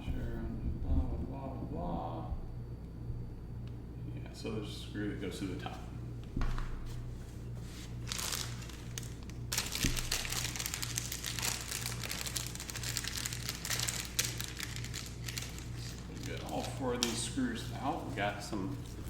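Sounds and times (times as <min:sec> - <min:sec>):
packaging crinkling and rustling: 0:06.5 - 0:19.0.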